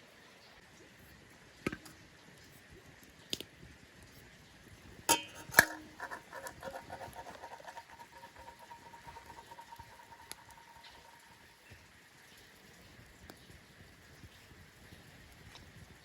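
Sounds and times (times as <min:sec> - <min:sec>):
utensils knocking on dishes: 0:05.1 - 0:11.5.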